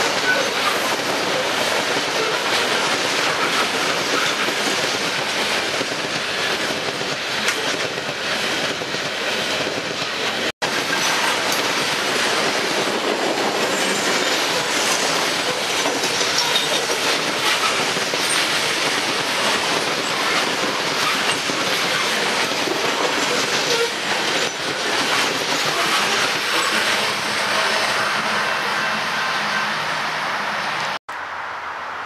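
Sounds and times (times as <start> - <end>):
train cars clattering past: 0.0 - 31.0.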